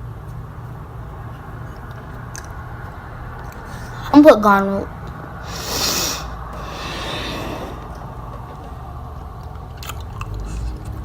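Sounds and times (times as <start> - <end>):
mouth chewing sticky slime: 1.8 - 3.9, 9.2 - 11.0.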